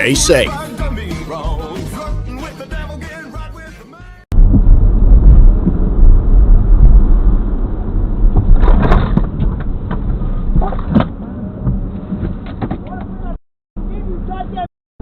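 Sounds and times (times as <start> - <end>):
vehicle and road rumble: 4.3 - 14.7.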